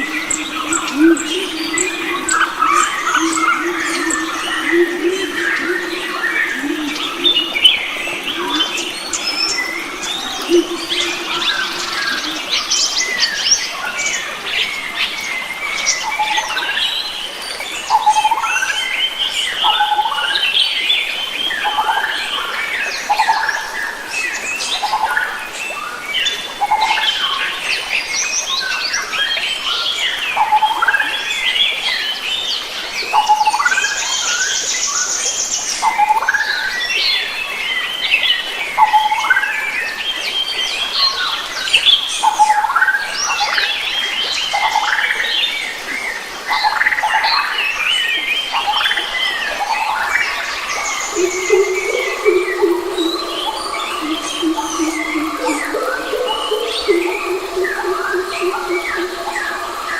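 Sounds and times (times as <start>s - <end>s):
birds chirping and singing: 0.0s - 13.7s, 49.7s - 59.9s.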